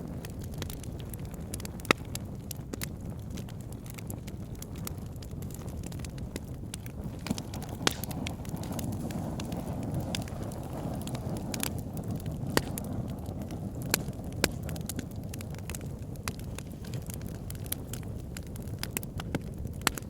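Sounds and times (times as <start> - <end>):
fire flames rumbling: 0.0 - 20.0
logs crackling and popping: 0.0 - 20.0.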